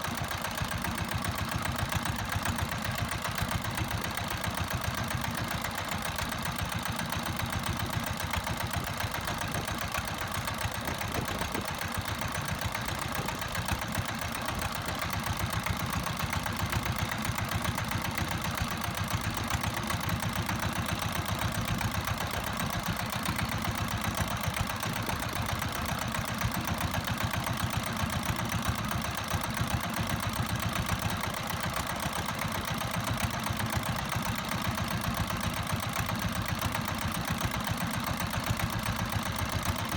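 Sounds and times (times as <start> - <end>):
boat engine running: 8.9 - 17.8.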